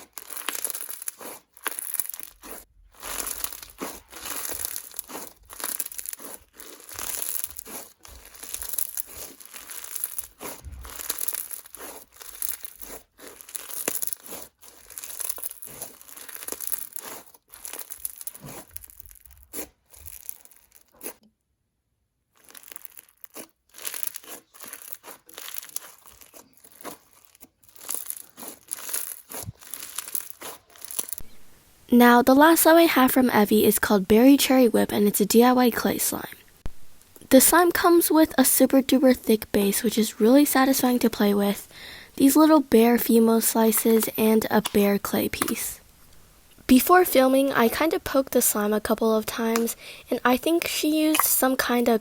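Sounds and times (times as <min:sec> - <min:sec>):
slime bead crunches: 0:00.0 - 0:21.2, 0:22.3 - 0:31.5, 0:40.6 - 0:52.0.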